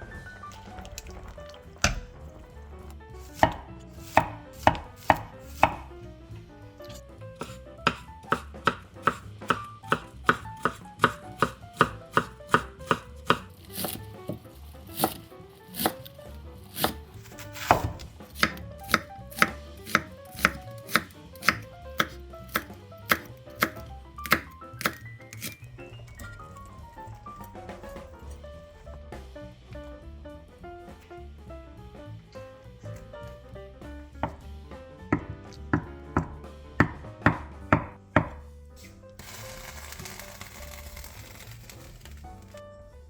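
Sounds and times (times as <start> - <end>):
knife chopping on cutting board: 3.2 - 5.9, 6.8 - 25.6, 35.1 - 38.9.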